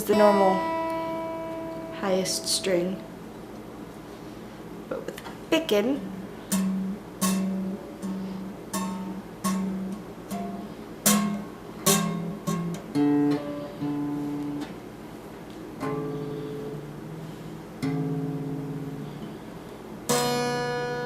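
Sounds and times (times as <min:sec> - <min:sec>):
guitar picked note by note: 0:00.0 - 0:03.2, 0:06.0 - 0:14.8, 0:15.8 - 0:19.4.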